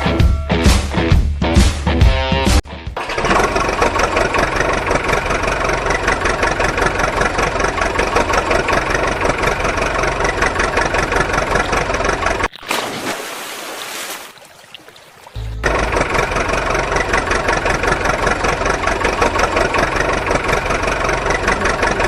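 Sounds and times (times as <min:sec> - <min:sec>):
tractor engine idling: 0:02.7 - 0:12.5, 0:15.3 - 0:22.0.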